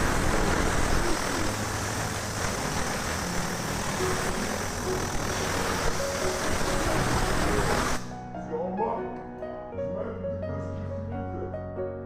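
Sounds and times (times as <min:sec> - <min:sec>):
steam cleaner jet hissing: 0:00.0 - 0:08.1.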